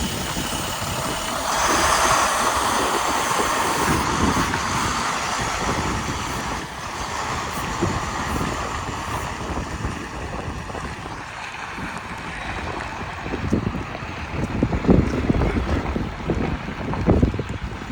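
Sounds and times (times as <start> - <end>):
diesel truck engine running: 0.0 - 17.6
wind noise on microphone: 0.0 - 17.9.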